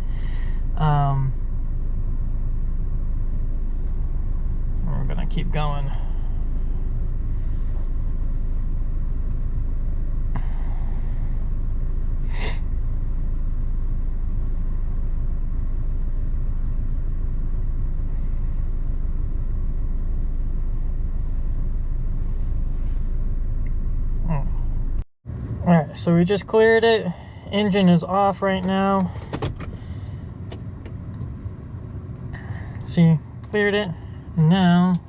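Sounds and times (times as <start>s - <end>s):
car engine idling: 0.0s - 35.0s
short hiss: 12.3s - 12.6s.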